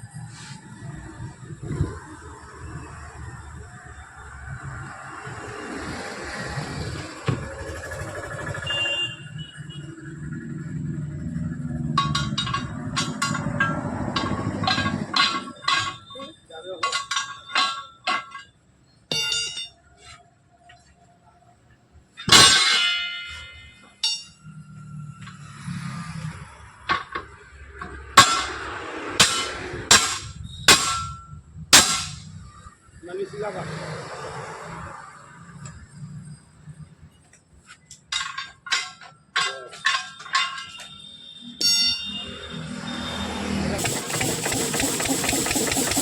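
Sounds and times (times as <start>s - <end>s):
hammer striking metal wheel rim: 22.3s - 23.4s, 28.2s - 28.6s, 29.2s - 31.2s, 31.8s - 32.3s
hammer clanging on steel rim: 29.2s - 31.2s.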